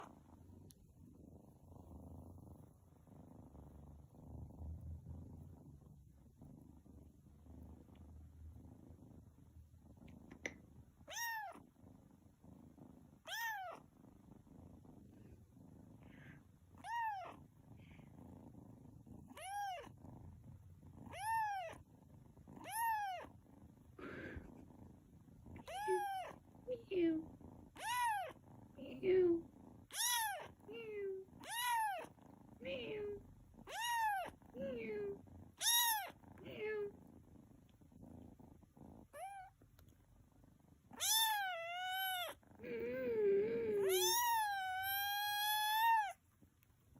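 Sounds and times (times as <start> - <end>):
cat purring: 0.0 - 46.9
cat meowing: 11.1 - 11.6, 13.2 - 13.8, 16.8 - 17.4, 19.3 - 19.9, 21.1 - 21.8, 22.6 - 23.3, 25.6 - 26.4, 27.8 - 28.4, 29.9 - 30.5, 31.4 - 32.1, 33.6 - 34.3, 35.6 - 36.2, 39.1 - 39.5, 41.0 - 42.4, 43.5 - 46.2.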